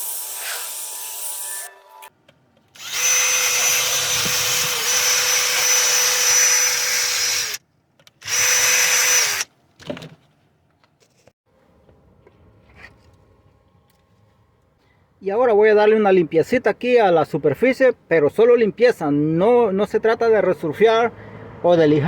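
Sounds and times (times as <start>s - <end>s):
power drill whining: 2.8s - 7.6s, 8.2s - 9.5s.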